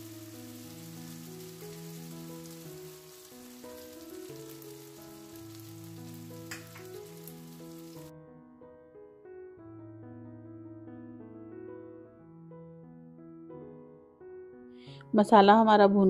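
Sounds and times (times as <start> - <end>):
onions sizzling in oil: 0.0 - 8.1
soft piano music: 0.0 - 16.0.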